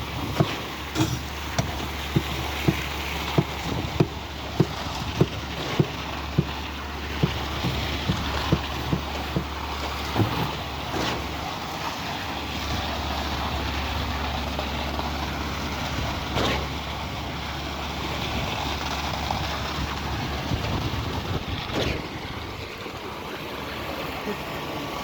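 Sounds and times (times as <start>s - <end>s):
broad noisy wash: 0.0s - 25.0s
diesel truck engine running: 0.0s - 25.0s
short knocks: 0.4s - 11.4s.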